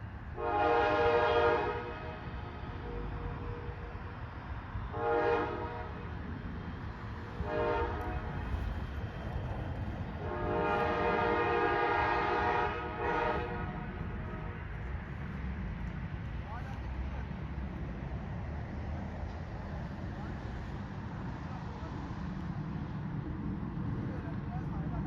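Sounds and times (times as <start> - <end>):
moving train rumble: 0.0 - 25.0
locomotive air horn blasts: 0.4 - 4.0, 4.9 - 6.2, 7.4 - 8.5, 10.2 - 14.6.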